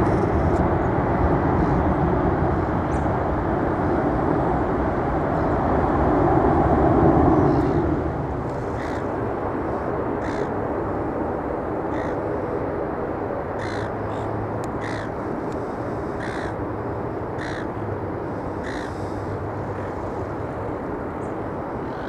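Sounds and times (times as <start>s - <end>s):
aircraft rumble: 0.0s - 22.0s
crow cawing: 8.8s - 9.1s, 10.2s - 10.6s, 11.9s - 12.2s, 13.6s - 15.2s, 16.1s - 16.6s, 17.4s - 17.8s, 18.6s - 19.2s.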